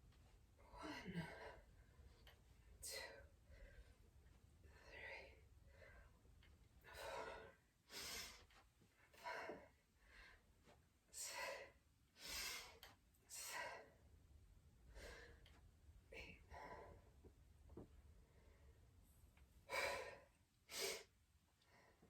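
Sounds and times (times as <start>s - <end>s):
person breathing hard: 6.8s - 8.5s, 11.2s - 14.0s, 14.9s - 15.6s, 19.7s - 22.0s.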